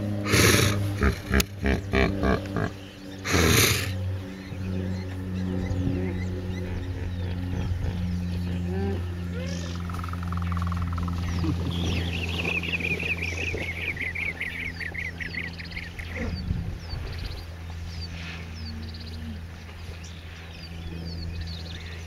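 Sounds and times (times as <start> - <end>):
steady low hum: 0.0 - 22.0
bird chattering: 0.3 - 4.0.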